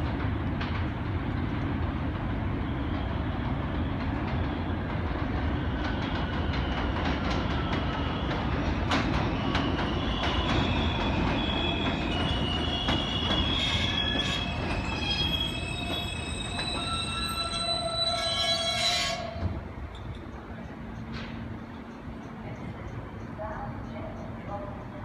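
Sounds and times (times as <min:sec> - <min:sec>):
subway train rumbling: 0:00.0 - 0:25.0
wheels squealing: 0:09.3 - 0:19.5.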